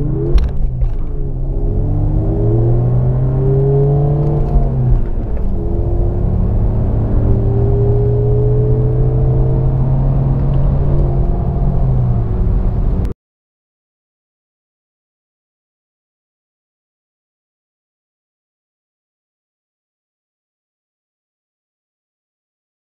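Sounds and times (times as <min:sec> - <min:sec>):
car engine at full throttle: 0:00.0 - 0:13.1.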